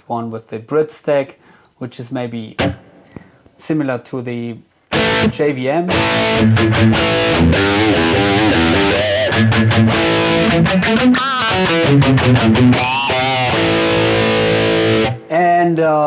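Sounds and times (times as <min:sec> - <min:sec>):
distorted electric guitar riff: 0:02.6 - 0:03.2, 0:04.9 - 0:15.5.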